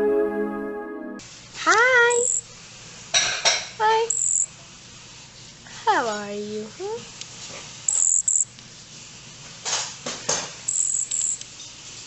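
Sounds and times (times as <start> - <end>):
baby bird begging peeps: 2.1 - 2.4, 4.1 - 4.5, 7.9 - 8.4.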